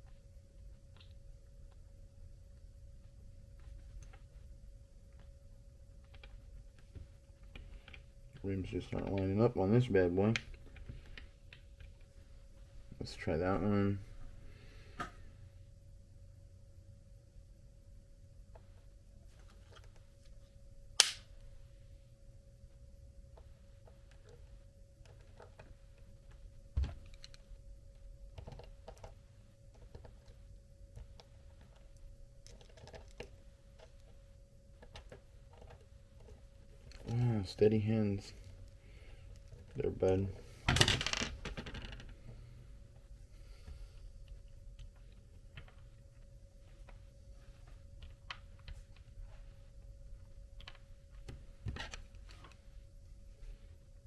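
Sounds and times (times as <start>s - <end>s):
faint steady hum: 0.0s - 54.0s
small parts clicking and tapping: 6.0s - 9.3s, 23.3s - 27.5s, 28.3s - 42.4s, 50.5s - 52.6s.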